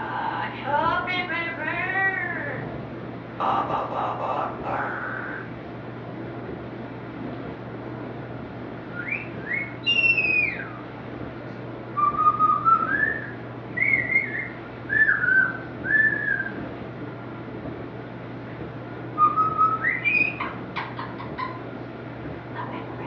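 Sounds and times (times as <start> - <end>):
bird whistling gliding notes: 4.7 - 5.5, 8.9 - 10.9, 12.0 - 16.6, 19.2 - 20.6.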